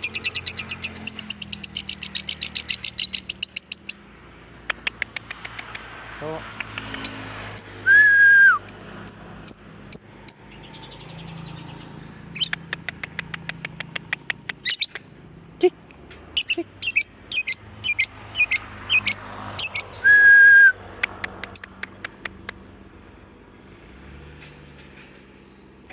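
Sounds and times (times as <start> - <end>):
lovebird chirping: 0.0 - 5.1, 6.8 - 15.8, 16.4 - 20.2
long whistled notes: 7.8 - 8.7, 20.0 - 20.8.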